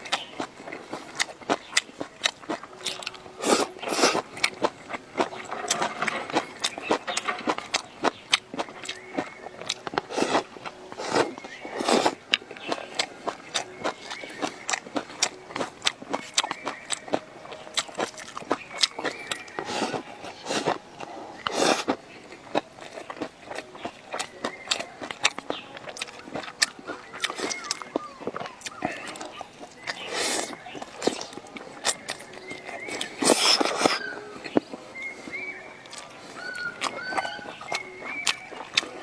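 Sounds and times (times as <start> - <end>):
person chewing food: 0.0 - 39.0
wet mouth noises: 0.0 - 39.0.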